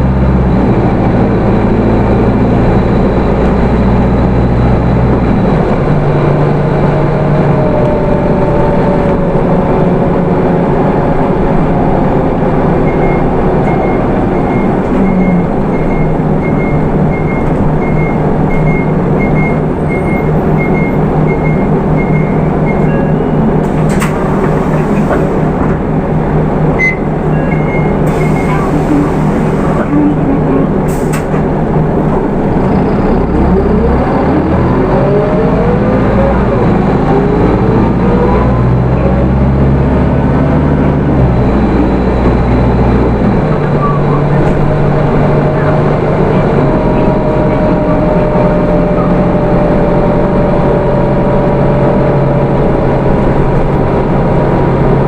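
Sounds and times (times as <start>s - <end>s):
bus engine low hum: 0.0s - 55.0s
high beeps: 12.8s - 23.5s, 26.8s - 29.0s.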